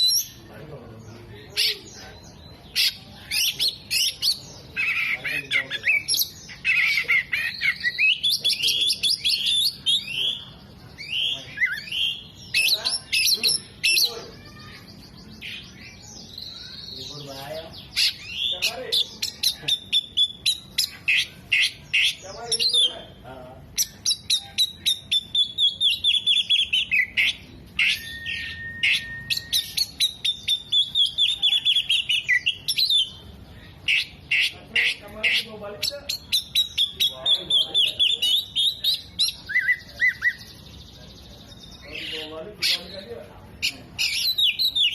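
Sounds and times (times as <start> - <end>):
bird singing: 0.0 - 44.9
bird singing sharp chirps: 23.8 - 44.9.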